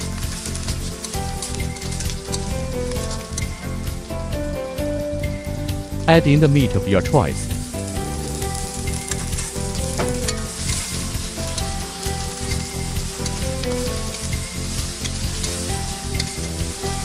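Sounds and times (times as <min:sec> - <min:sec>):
metal ladle scraping wok: 0:00.0 - 0:04.1, 0:07.6 - 0:17.0
meat sizzling in a wok: 0:00.0 - 0:06.0, 0:07.2 - 0:17.0.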